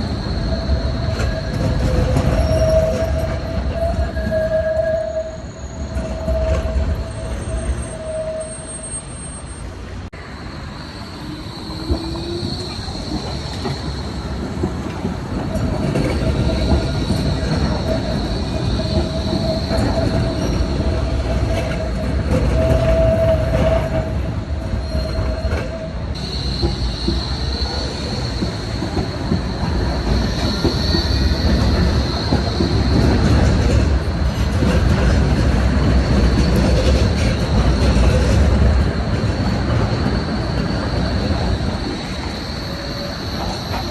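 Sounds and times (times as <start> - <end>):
lower squeal tone: 0.0 - 14.3, 15.5 - 33.9, 36.2 - 43.9
tram rumbling: 0.0 - 43.9
tram wheels squealing on rails: 0.0 - 43.9.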